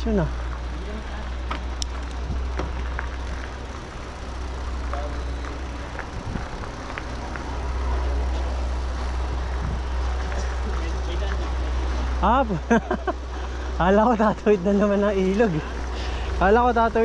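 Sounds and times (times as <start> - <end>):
wind rumble on microphone: 2.1 - 2.8, 5.9 - 7.4, 9.2 - 10.0.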